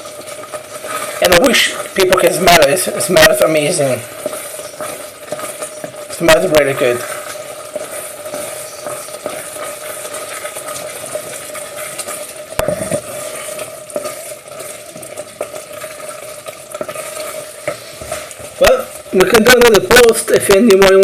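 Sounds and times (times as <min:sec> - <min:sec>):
spoon scraping a pan: 0:00.0 - 0:20.1
rice sizzling in a pan: 0:00.0 - 0:21.0
spoon knocking on pan: 0:12.0 - 0:13.1.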